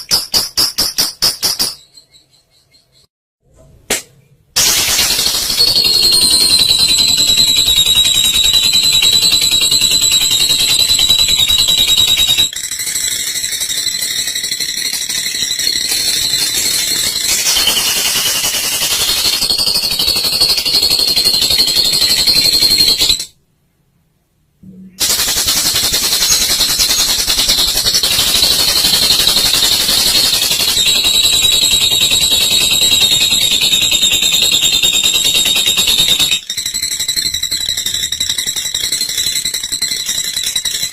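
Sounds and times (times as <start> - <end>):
lovebird rattling chatter: 4.6 - 23.3, 25.0 - 40.9.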